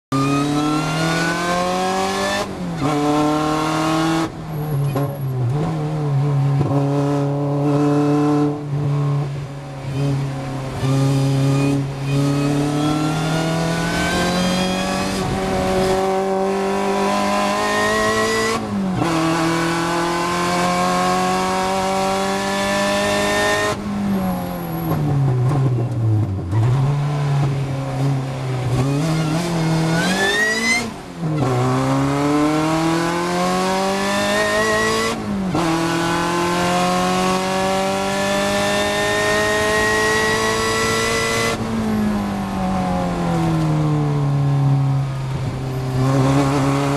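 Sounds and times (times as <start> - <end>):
car engine at full throttle: 0.1 - 46.9.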